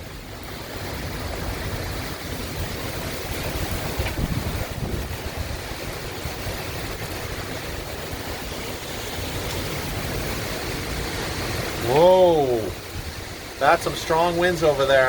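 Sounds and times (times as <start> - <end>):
wind buffeting microphone: 0.0 - 14.8
heavy rain: 0.0 - 15.0.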